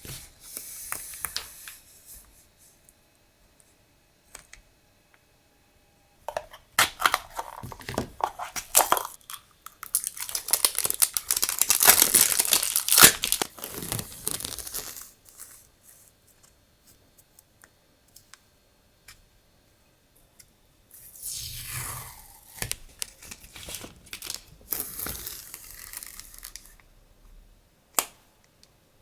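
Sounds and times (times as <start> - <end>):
packaging torn and crumpled: 8.5 - 15.2, 22.2 - 26.8.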